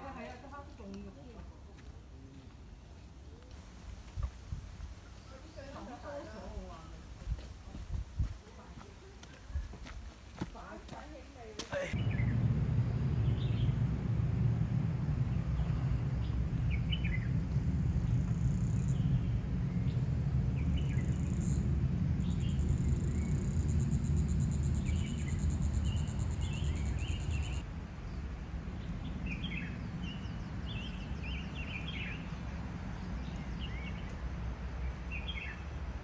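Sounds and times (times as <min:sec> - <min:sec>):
forest birds chirping: 0:00.0 - 0:12.3, 0:13.2 - 0:13.8, 0:15.2 - 0:35.8
low steady rumble: 0:11.9 - 0:35.0.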